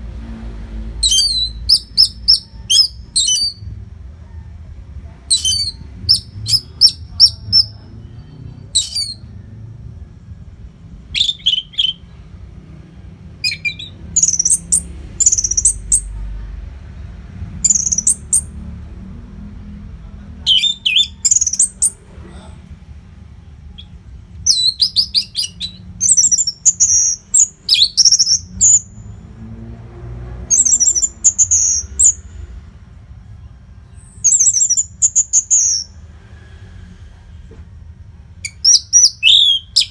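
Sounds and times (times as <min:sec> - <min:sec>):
thrush singing whistled notes: 0:01.0 - 0:03.6, 0:05.3 - 0:09.3, 0:11.1 - 0:12.2, 0:13.4 - 0:16.2, 0:17.6 - 0:18.5, 0:20.5 - 0:22.0, 0:23.8 - 0:29.0, 0:30.5 - 0:32.2, 0:34.1 - 0:36.0, 0:38.4 - 0:39.9.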